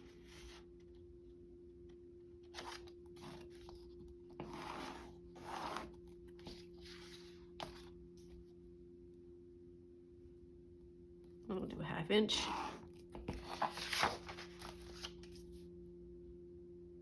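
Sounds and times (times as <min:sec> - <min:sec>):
paper rustling and scraping: 0:00.0 - 0:00.7, 0:02.5 - 0:08.0, 0:12.4 - 0:15.6
faint steady hum: 0:00.0 - 0:17.0.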